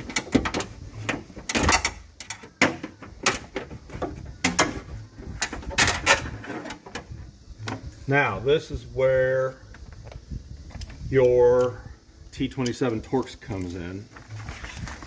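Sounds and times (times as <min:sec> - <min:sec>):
truck door latch clicking and snapping: 0:01.4 - 0:03.6.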